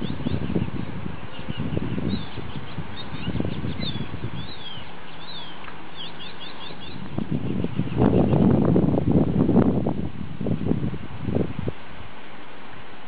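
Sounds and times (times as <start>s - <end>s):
small birds chirping: 0.0s - 8.6s
steady low rumbling noise: 0.0s - 13.0s.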